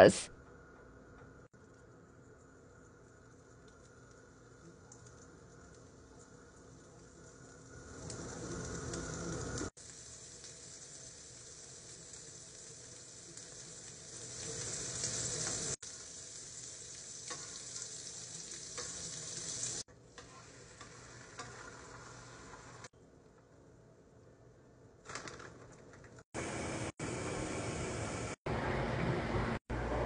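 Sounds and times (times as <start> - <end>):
food sizzling on a griddle: 3.1 - 22.9.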